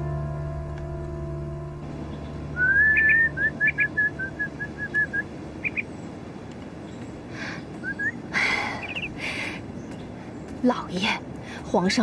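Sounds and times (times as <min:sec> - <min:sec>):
songbird chirping and whistling: 0:02.0 - 0:06.2, 0:06.8 - 0:10.6.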